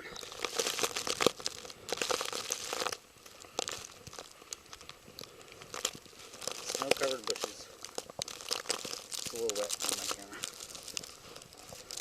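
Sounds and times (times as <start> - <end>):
footsteps crunching through snow: 0.2 - 12.0.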